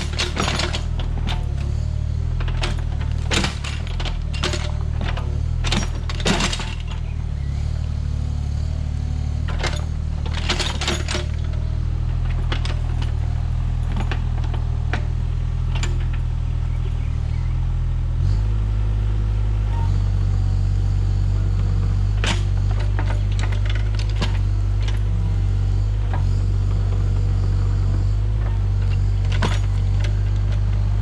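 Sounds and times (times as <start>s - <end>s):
metallic clicks and clanks: 0.0s - 1.8s, 2.4s - 7.1s, 9.4s - 13.2s
diesel engine running: 0.0s - 31.0s.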